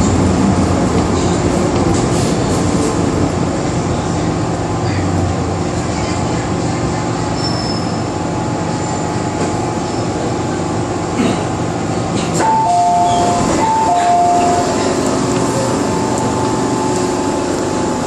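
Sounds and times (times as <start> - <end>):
train wheels rumbling on rail: 0.0 - 18.0
high wheel squeal: 7.4 - 8.1.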